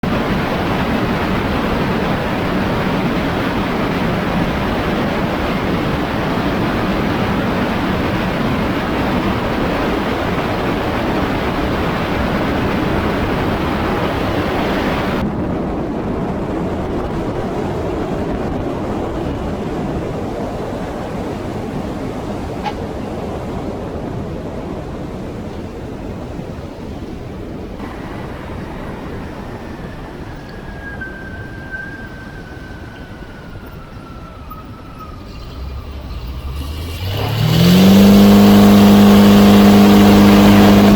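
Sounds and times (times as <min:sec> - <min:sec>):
light aircraft engine and wind: 0:00.0 - 0:40.9
faint thin tone: 0:28.0 - 0:36.3.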